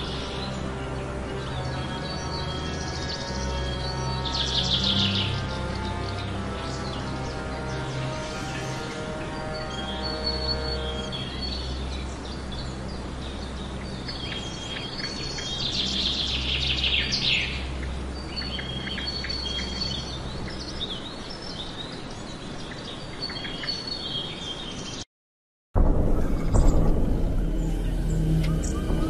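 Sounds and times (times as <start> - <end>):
birds chirping and calling: 0.0 - 25.0, 26.2 - 29.0
steady low hum: 25.8 - 29.0.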